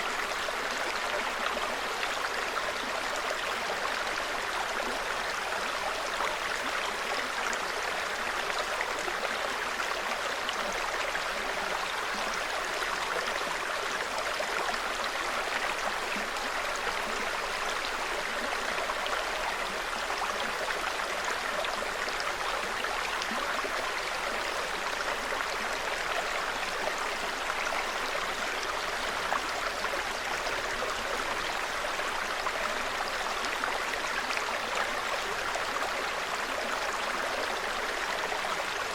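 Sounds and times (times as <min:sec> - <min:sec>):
stream babbling: 0:00.0 - 0:38.9.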